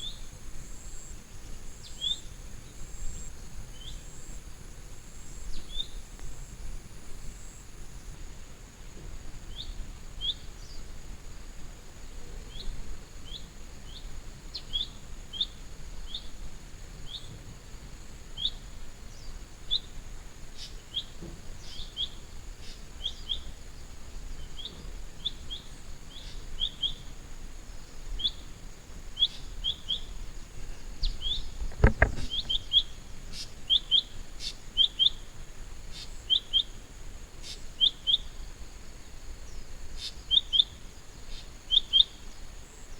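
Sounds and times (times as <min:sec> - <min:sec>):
small bird chirping: 0:29.2 - 0:35.2
dull thump: 0:31.6 - 0:32.6.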